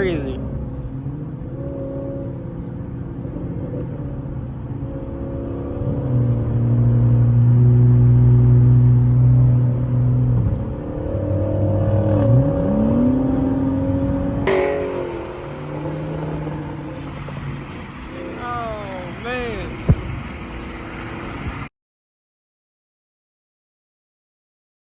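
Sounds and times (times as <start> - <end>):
car engine revving: 0.0 - 21.7
exhaust crackling and popping: 14.4 - 21.7.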